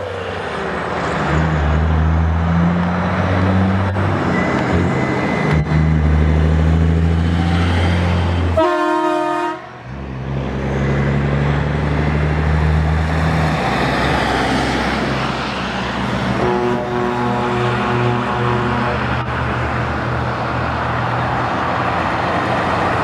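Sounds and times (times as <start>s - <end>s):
truck engines droning: 0.0s - 23.0s
air horn blast: 8.5s - 9.8s, 16.4s - 19.3s.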